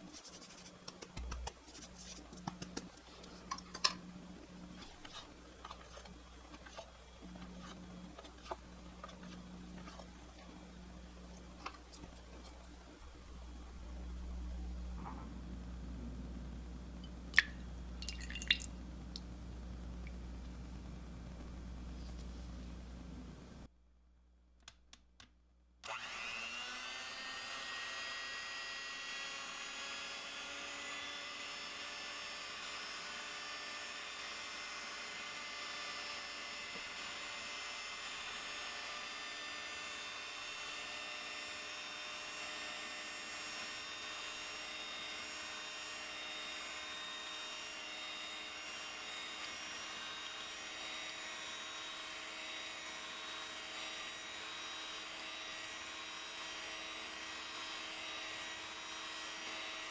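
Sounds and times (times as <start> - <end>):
electric mixer running: 25.9 - 59.9.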